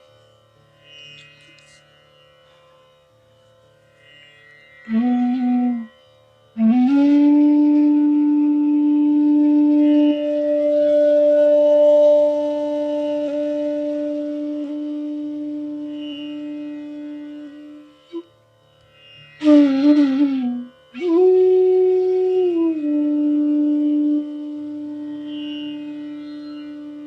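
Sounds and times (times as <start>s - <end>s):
bamboo flute playing: 4.8s - 18.4s, 19.4s - 27.0s.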